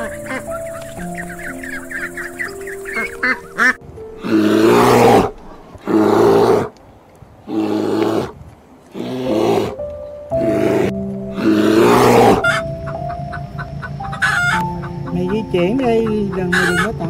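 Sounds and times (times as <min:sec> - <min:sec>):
bear roaring: 0:04.2 - 0:06.7, 0:07.5 - 0:09.8, 0:10.4 - 0:12.4.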